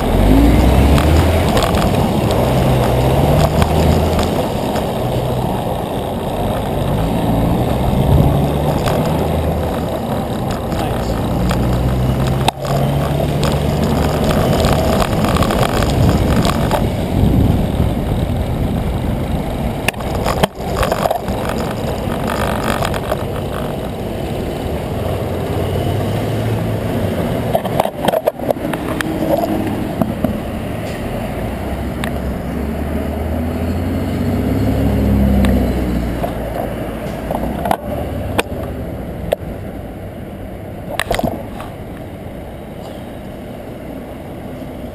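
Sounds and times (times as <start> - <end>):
bicycle tyres rumbling on pavement: 0.0 - 30.5
wind rushing over microphone: 0.0 - 42.4
road traffic: 0.0 - 44.9.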